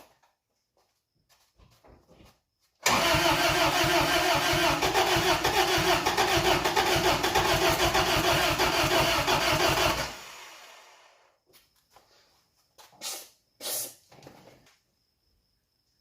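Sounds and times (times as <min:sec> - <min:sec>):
starter motor cranking engine: 0:02.8 - 0:11.1.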